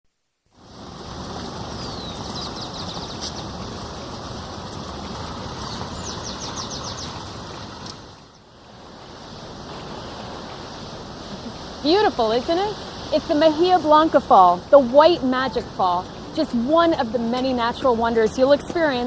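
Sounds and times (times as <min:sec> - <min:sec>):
waterfall rushing: 0:10.1 - 0:19.0.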